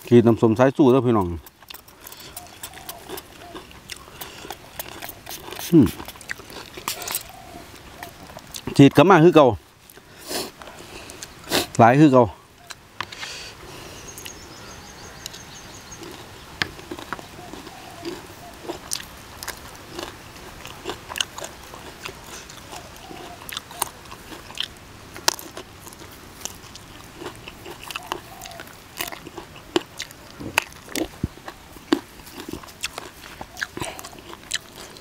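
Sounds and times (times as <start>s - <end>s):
person chewing and crunching: 0.0s - 9.0s, 9.8s - 11.8s, 15.2s - 35.0s.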